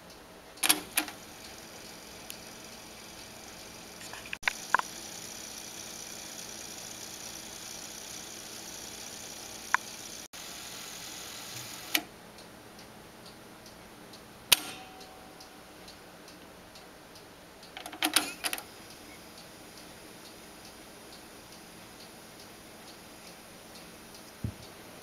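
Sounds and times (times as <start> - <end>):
faint regular ticking: 0.0 - 10.3, 12.3 - 25.0
steady hum: 0.0 - 17.7
cassette player mechanism clicks: 0.6 - 1.2, 14.5 - 14.9, 17.8 - 18.6.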